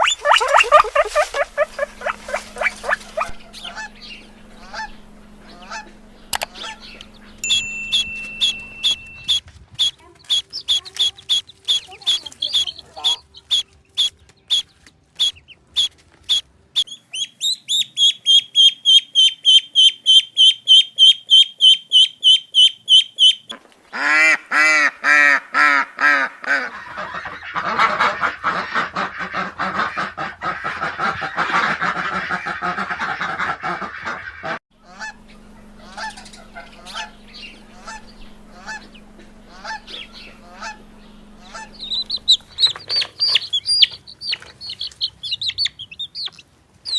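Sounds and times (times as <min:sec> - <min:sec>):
birds honking in flock chorus: 0:00.0 - 0:07.4, 0:08.4 - 0:14.6, 0:19.2 - 0:45.9
low steady hum: 0:00.0 - 0:16.9, 0:34.7 - 0:45.8
sharp high bird calls: 0:00.0 - 0:24.1, 0:34.8 - 0:46.9.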